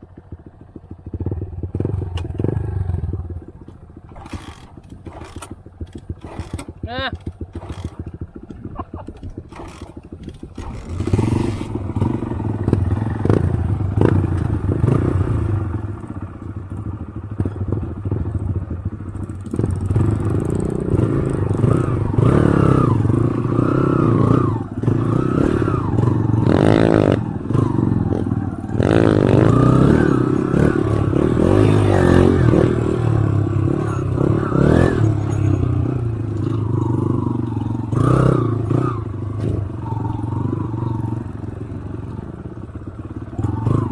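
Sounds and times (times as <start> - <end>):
motorcycle engine revving: 0.0 - 43.9
bike knocks and rattles: 0.2 - 15.0.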